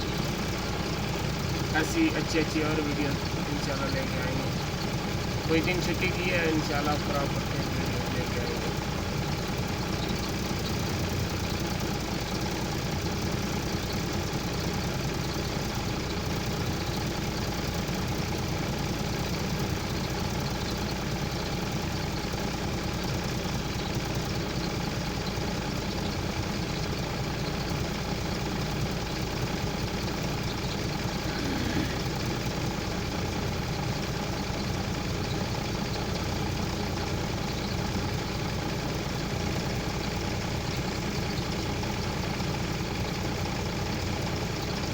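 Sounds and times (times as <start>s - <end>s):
truck engine running: 0.0s - 44.9s.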